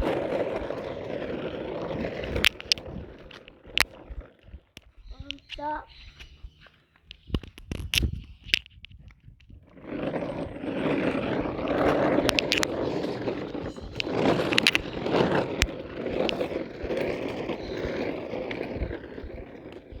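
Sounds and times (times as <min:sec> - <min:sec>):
toy tractor wheels on rough ground: 0:00.0 - 0:20.0.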